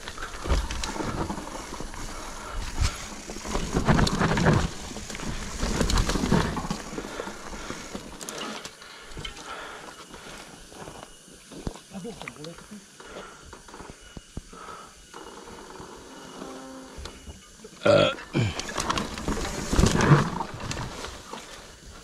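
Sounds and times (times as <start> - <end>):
bike clicks and rattles: 0.0 - 11.2, 18.4 - 22.0
bike tyres on rough dirt trail: 0.0 - 22.0.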